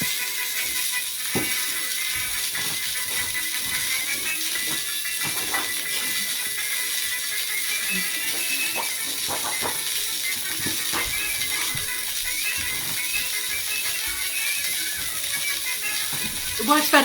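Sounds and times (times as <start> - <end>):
old-time music: 0.0 - 17.0
film projector clicking rattle: 4.3 - 16.7.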